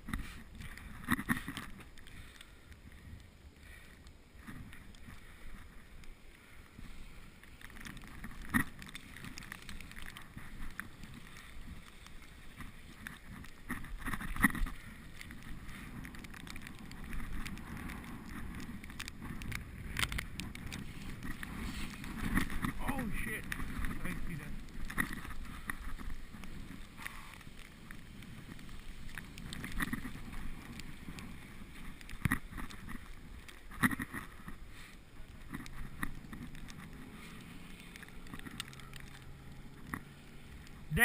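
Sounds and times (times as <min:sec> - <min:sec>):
bicycle rolling over snow: 0:00.0 - 0:41.0
bicycle knocks and rattles: 0:07.6 - 0:27.3, 0:28.3 - 0:34.6.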